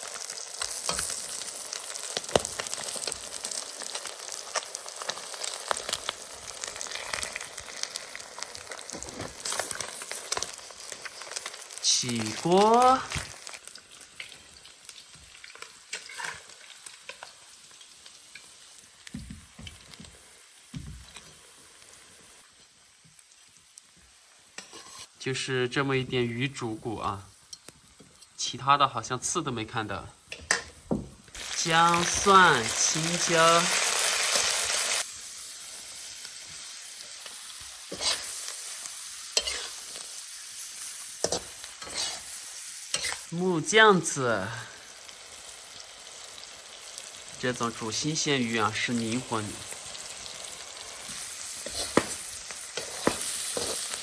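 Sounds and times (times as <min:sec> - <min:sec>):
oil sizzling: 0:00.0 - 0:54.0
metal spatula scraping pan: 0:15.9 - 0:16.4, 0:24.6 - 0:25.1, 0:37.9 - 0:38.4, 0:39.4 - 0:39.8, 0:41.2 - 0:42.3, 0:42.9 - 0:43.3.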